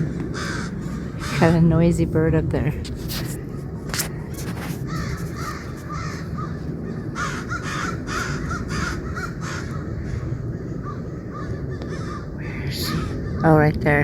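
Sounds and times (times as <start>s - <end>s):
crow cawing: 0.0s - 1.6s, 4.6s - 13.5s
steady low rumble: 0.0s - 14.0s.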